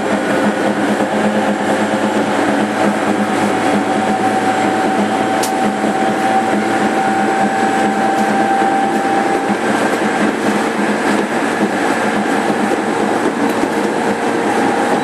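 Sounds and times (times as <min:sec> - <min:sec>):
electric train motor whine: 0:00.0 - 0:15.0.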